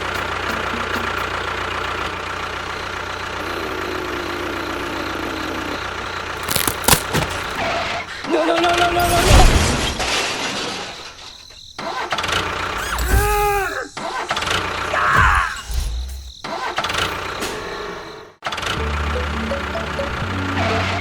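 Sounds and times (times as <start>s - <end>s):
engine running: 18.6s - 21.0s.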